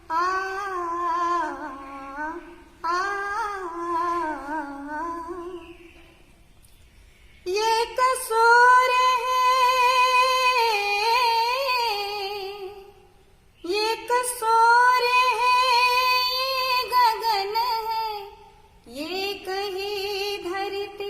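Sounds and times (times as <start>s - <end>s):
woman singing wordlessly: 0.0s - 5.8s, 7.4s - 21.0s.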